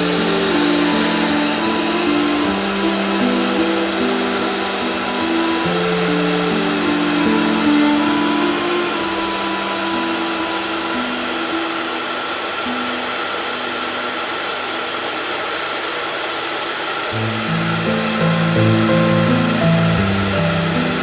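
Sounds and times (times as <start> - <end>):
background music: 0.0 - 12.2, 17.2 - 21.0
hot-air gun blowing: 0.0 - 21.0.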